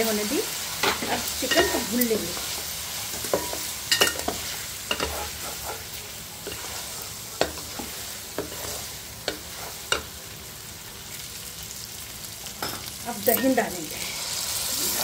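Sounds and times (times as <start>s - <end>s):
food sizzling in a pot: 0.0s - 15.0s
wooden spatula scraping a pot: 4.2s - 10.1s.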